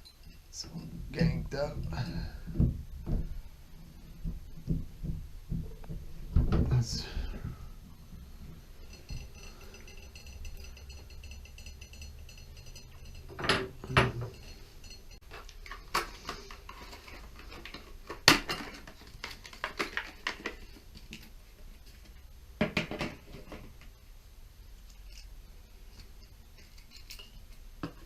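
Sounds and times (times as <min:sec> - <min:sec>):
metal tools clinking: 0:08.4 - 0:20.7, 0:24.9 - 0:28.0.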